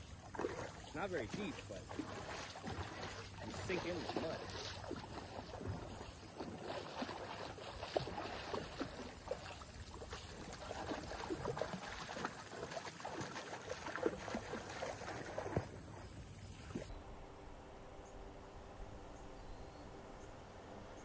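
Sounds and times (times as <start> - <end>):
water splashing and sloshing: 0.0 - 16.9
feet sinking into mud: 0.2 - 16.9.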